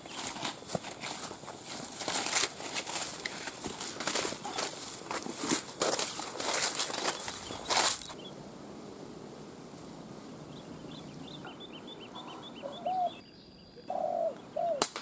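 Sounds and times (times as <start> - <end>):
dove cooing: 10.2 - 13.2, 13.8 - 14.9.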